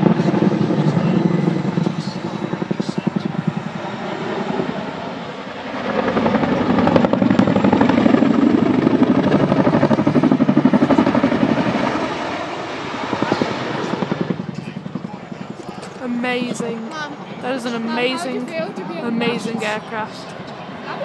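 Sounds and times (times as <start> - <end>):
helicopter rotor blades chopping: 0.0 - 21.0.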